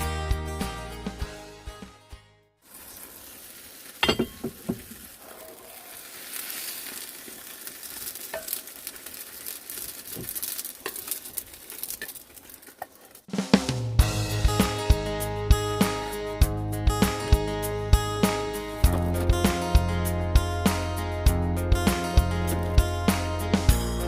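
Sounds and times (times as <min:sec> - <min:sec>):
food sizzling in frying pan: 0:02.6 - 0:13.2.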